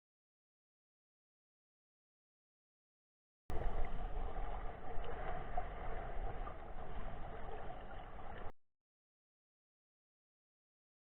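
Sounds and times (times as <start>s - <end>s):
boat engine rumble: 3.5s - 8.5s
rushing water: 3.5s - 8.5s.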